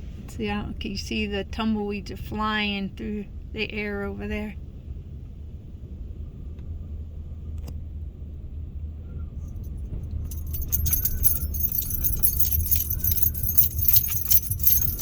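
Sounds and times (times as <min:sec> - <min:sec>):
wind buffeting a van: 0:04.6 - 0:15.0
rapid metallic jingling: 0:09.6 - 0:15.0.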